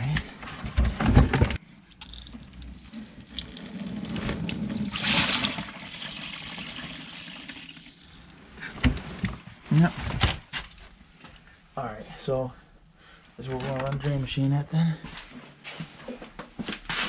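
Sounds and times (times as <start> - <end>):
waste water rushing out of drain: 2.1 - 8.6.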